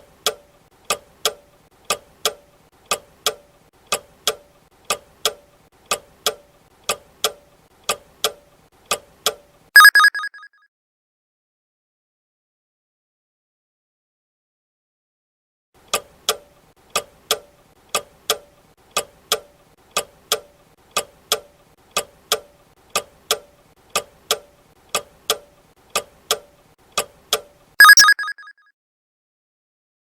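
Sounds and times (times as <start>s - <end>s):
clock ticking: 0.0s - 10.2s, 17.0s - 28.4s
timer ringing: 9.8s - 10.5s, 27.8s - 28.5s.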